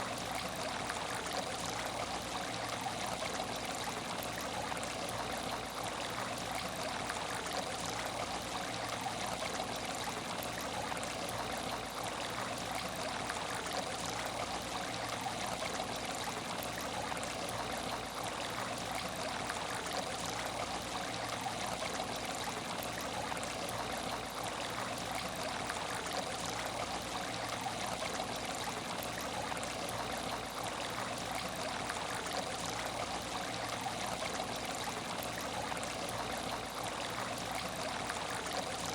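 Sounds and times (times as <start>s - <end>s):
water trickling in a tank: 0.0s - 38.9s.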